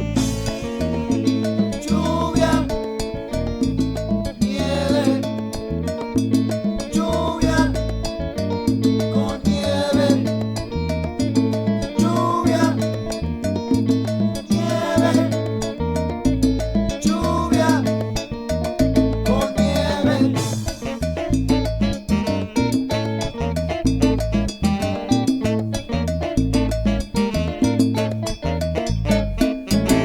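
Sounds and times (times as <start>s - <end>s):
salsa band music: 0.0s - 30.0s.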